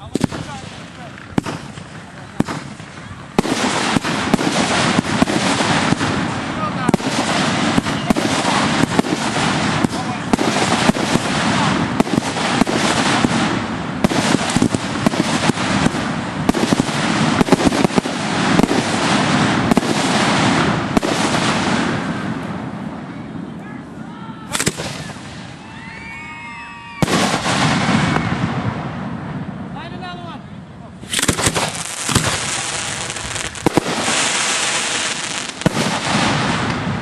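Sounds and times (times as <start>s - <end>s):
firework mortar launches and bursts: 0.0s - 23.0s, 24.5s - 25.9s, 26.9s - 29.8s, 31.0s - 37.0s
sharp firework report: 0.0s - 37.0s
whistling firework glides: 7.0s - 11.3s, 24.5s - 28.9s.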